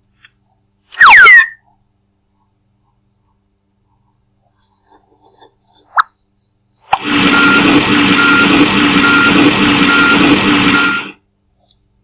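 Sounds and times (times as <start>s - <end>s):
cartoon vehicle engine running: 6.9s - 11.2s
reversing alarm beeping: 7.0s - 11.2s.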